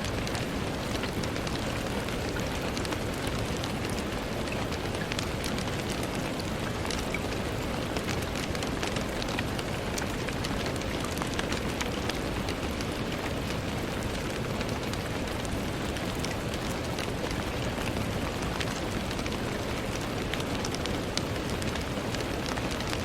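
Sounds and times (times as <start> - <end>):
rain striking a window: 0.0 - 23.0.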